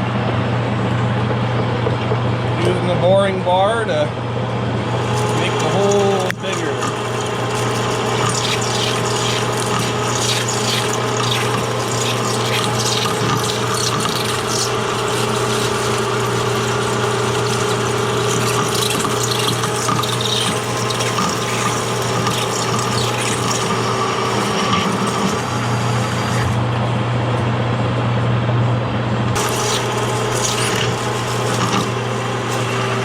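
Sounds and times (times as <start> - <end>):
lathe motor hum: 4.4 - 27.3, 29.3 - 33.0
hissing metal cutting: 4.8 - 26.7, 29.4 - 33.0.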